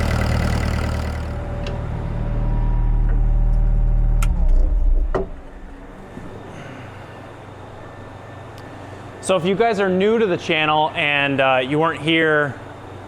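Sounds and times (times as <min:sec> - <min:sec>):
engine winding down with a thump: 0:00.0 - 0:06.4
diesel engine idling: 0:00.0 - 0:07.7
faint steady hum: 0:00.0 - 0:13.0.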